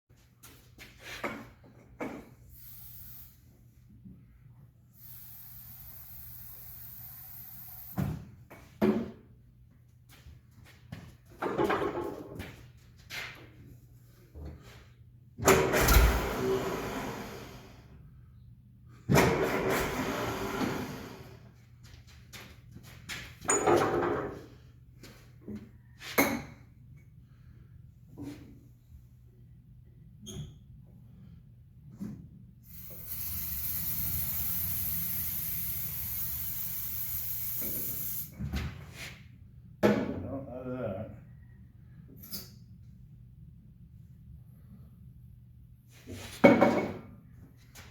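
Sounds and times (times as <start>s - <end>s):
aerosol can spraying hiss: 5.0s - 8.0s, 32.7s - 38.3s.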